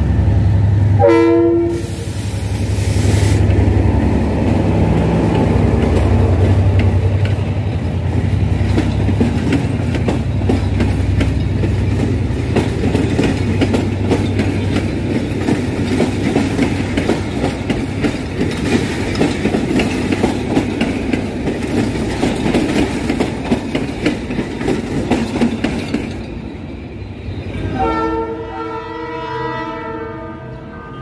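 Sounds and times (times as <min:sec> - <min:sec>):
train horn: 0:01.0 - 0:02.1, 0:27.6 - 0:31.0
train wheels clattering over rail joints: 0:03.4 - 0:27.7.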